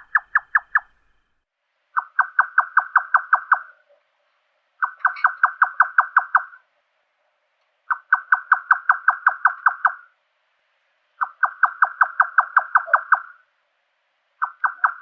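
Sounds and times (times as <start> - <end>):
nightjar knocking calls: 0.0 - 1.2, 2.0 - 4.0, 4.8 - 6.6, 7.9 - 10.1, 11.2 - 13.4, 14.4 - 15.0.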